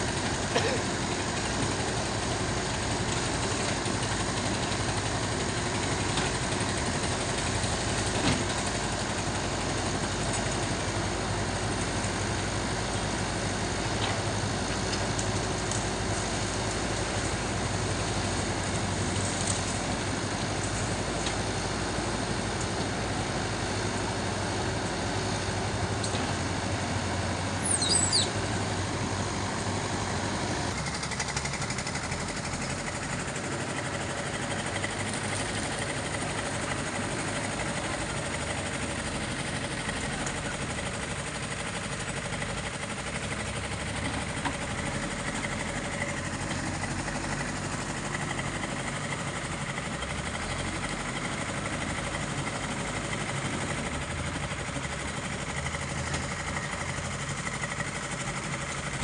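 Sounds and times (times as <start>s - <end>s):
heavy machinery engine running: 0.0s - 59.0s
brief high squeal: 27.6s - 28.4s.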